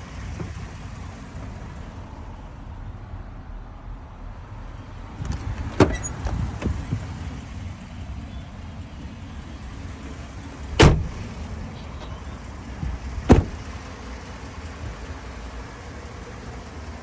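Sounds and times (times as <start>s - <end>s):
sharp thumps of doors shutting: 5.1s - 7.2s, 10.6s - 11.4s, 12.8s - 13.8s.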